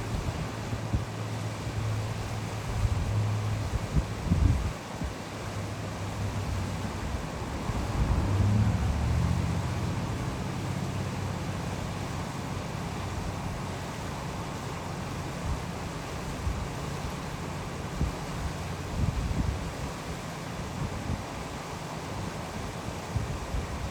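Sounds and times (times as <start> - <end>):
waterfall rushing: 4.8 - 23.9.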